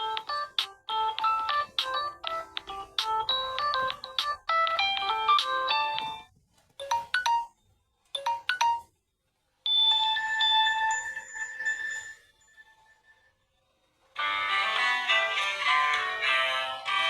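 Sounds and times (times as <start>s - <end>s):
chiming tone: 9.7s - 13.3s.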